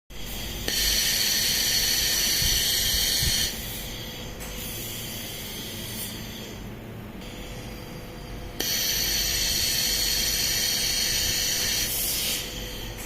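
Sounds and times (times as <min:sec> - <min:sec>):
laser welding machine hiss: 0:00.1 - 0:13.0.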